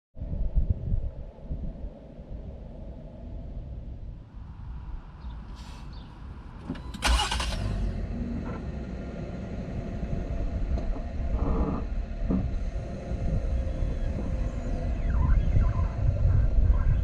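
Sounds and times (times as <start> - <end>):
car engine cranking and idling: 5.2 - 15.6.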